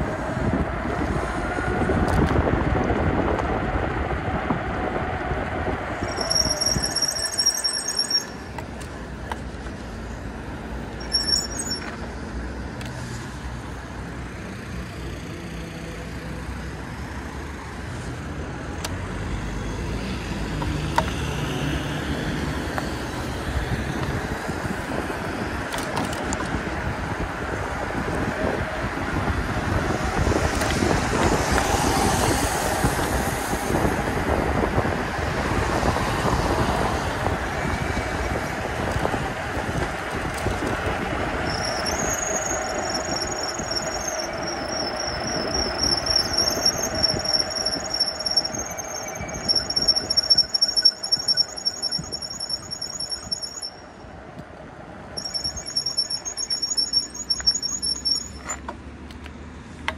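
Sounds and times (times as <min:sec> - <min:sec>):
passing vehicles: 0:00.0 - 0:59.9
short high squeal: 0:06.0 - 0:08.5, 0:11.0 - 0:12.1, 0:41.4 - 0:53.9, 0:55.2 - 0:58.6.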